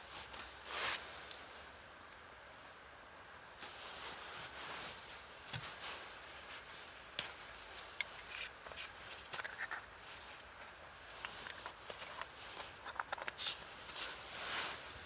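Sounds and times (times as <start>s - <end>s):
soft rustling and rubbing: 0.0s - 1.7s, 3.6s - 15.0s
small crackles: 3.6s - 15.0s.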